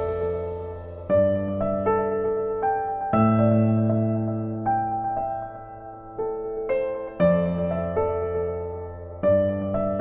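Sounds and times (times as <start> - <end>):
soft piano chords: 0.0 - 10.0.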